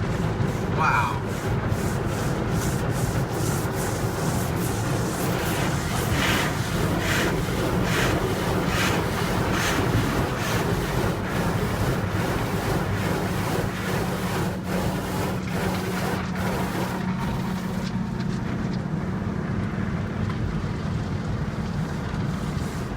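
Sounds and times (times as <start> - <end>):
water spraying: 0.0 - 18.0
car wash brushes swishing: 0.0 - 18.2, 22.3 - 22.9
steady low hum: 0.0 - 22.9.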